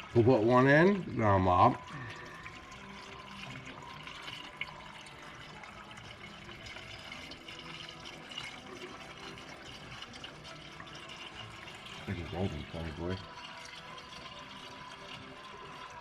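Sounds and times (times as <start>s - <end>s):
coolant pouring: 0.0s - 16.0s.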